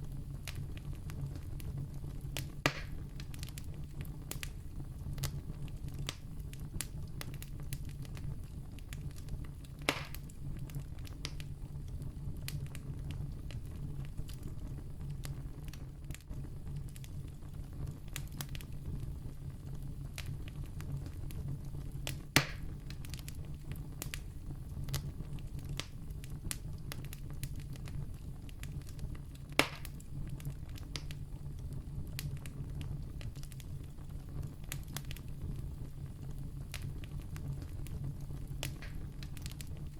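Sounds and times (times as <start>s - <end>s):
campfire burning and crackling: 0.0s - 39.9s
loud sharp fire pops: 2.3s - 8.3s, 9.0s - 11.5s, 22.0s - 28.0s, 28.6s - 31.2s, 36.7s - 39.9s.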